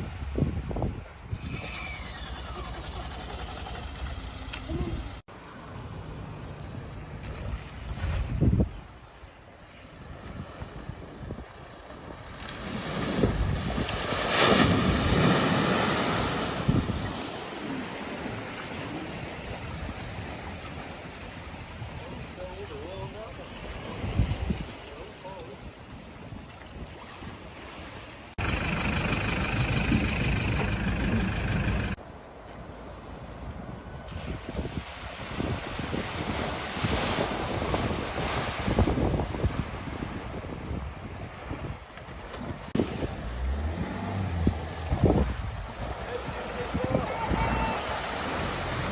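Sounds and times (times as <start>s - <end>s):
water noise: 0.0s - 48.9s
wind: 0.0s - 48.9s
vehicle splashing through water: 11.9s - 24.2s, 28.3s - 32.0s, 41.6s - 48.9s
vehicle engine running: 28.4s - 32.0s.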